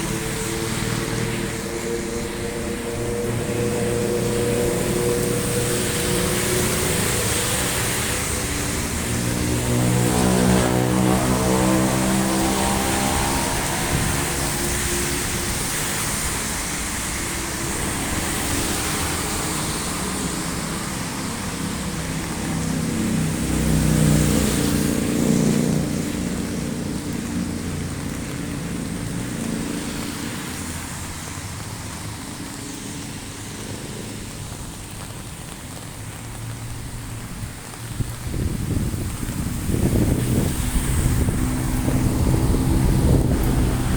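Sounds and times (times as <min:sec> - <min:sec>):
heavy rain hissing: 0:00.0 - 0:43.9
vehicles passing on street: 0:00.0 - 0:43.9
low vehicle rumble: 0:30.7 - 0:43.9.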